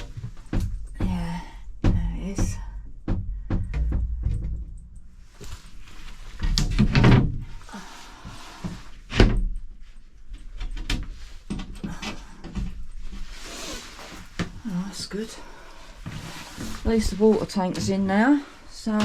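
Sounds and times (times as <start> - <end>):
door knocks and thuds: 0.5 - 4.8.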